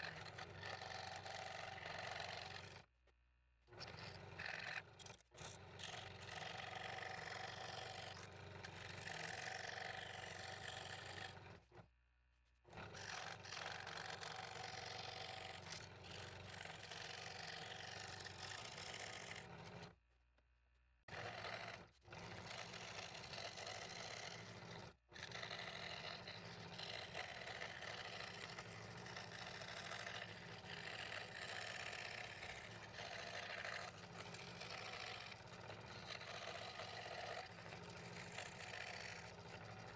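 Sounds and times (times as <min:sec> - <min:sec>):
scroll saw cutting wood: 0:12.8 - 0:19.8, 0:21.1 - 0:39.9.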